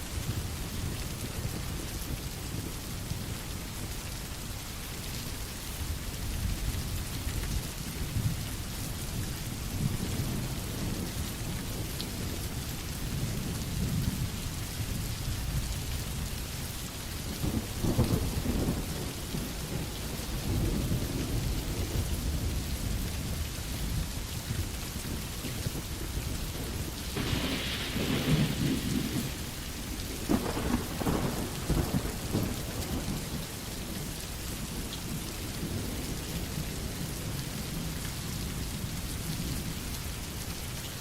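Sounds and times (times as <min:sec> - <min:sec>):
steady rain: 0:00.0 - 0:41.0
low rolling thunder: 0:17.4 - 0:38.0.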